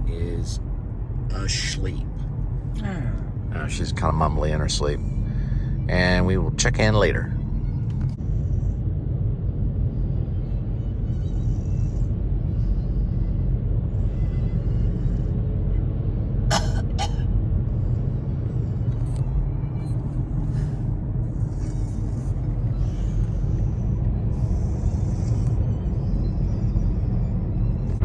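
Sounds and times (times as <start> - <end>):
car cabin road rumble: 0.0 - 5.2.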